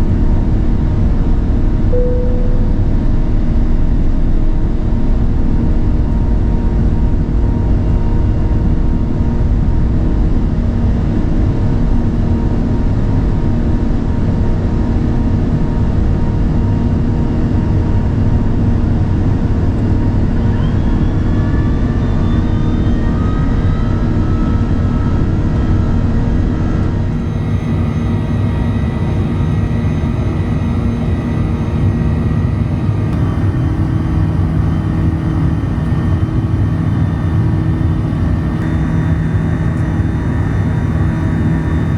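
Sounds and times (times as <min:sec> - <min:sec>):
airliner engine and airflow rumble: 0:00.0 - 0:41.9
rising whine: 0:01.9 - 0:04.2, 0:26.8 - 0:41.9.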